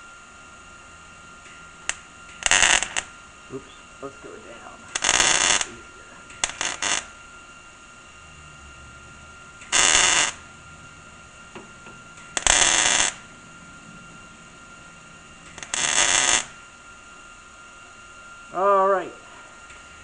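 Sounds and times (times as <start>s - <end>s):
welding crackle: 1.3s - 7.3s, 9.5s - 10.5s, 11.1s - 16.8s.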